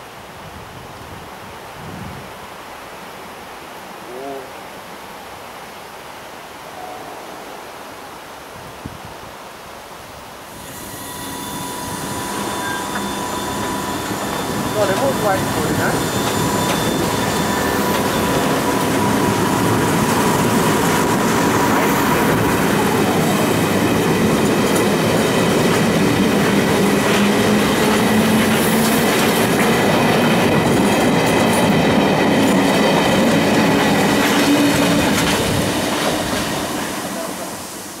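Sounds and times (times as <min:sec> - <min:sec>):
train wheels rumbling on rail: 0:10.6 - 0:38.0.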